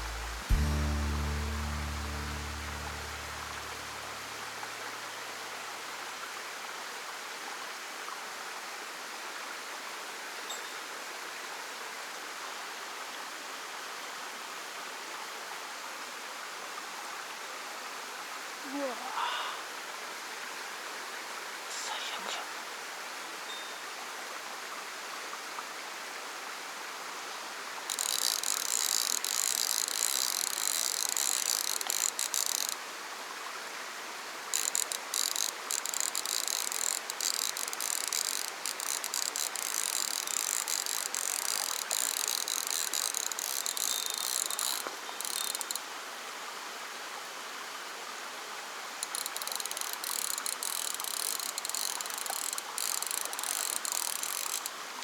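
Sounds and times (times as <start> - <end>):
fishing reel ratcheting clicks: 0.0 - 4.8, 27.9 - 32.8, 34.5 - 45.8, 49.0 - 54.8
stream rushing: 26.6 - 55.0.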